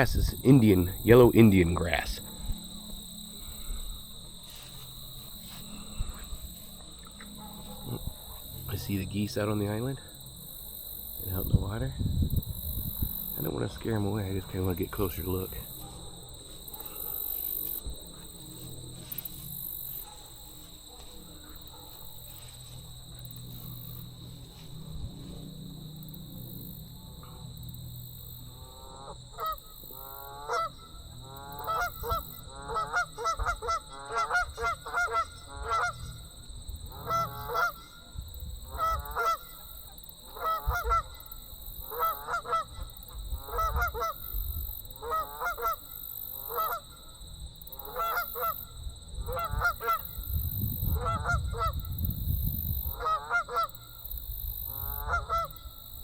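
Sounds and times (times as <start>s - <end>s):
geese honking: 0.0s - 10.4s, 28.5s - 36.3s, 36.9s - 38.1s, 38.7s - 44.4s, 45.0s - 47.0s, 47.7s - 50.3s, 50.9s - 51.8s, 52.9s - 53.9s, 54.6s - 55.7s.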